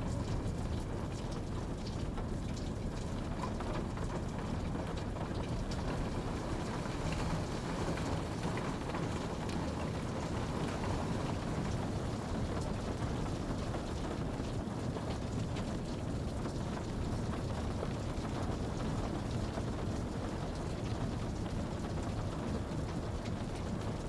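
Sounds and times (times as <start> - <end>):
steady rain hiss: 0.1 - 24.0.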